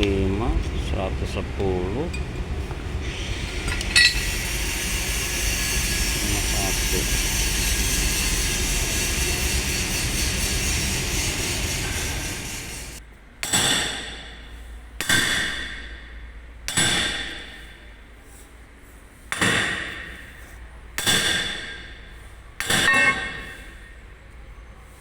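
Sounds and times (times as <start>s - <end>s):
hammer striking steel: 3.1s - 14.4s, 15.0s - 16.0s, 16.7s - 17.8s, 19.3s - 20.4s, 21.0s - 24.0s.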